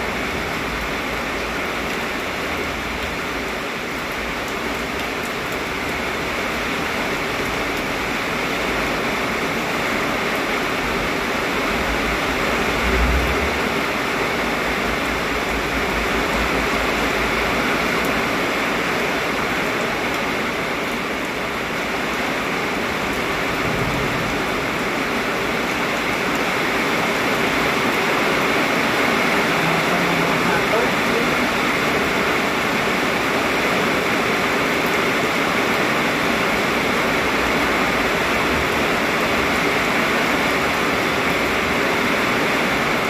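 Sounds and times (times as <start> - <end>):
heavy rain pouring: 0.0 - 43.0
strong wind: 10.8 - 17.5, 22.6 - 34.2.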